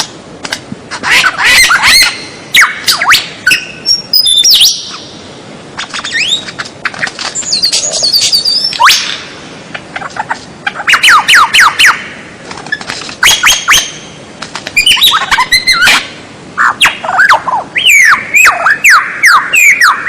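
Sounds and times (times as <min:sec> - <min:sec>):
harsh bird squawking: 0:00.9 - 0:05.1, 0:05.8 - 0:14.2, 0:14.8 - 0:20.0
songbird whistling song: 0:01.0 - 0:05.2, 0:05.8 - 0:06.6, 0:07.3 - 0:09.3, 0:10.8 - 0:12.1, 0:12.7 - 0:14.2, 0:14.8 - 0:20.0.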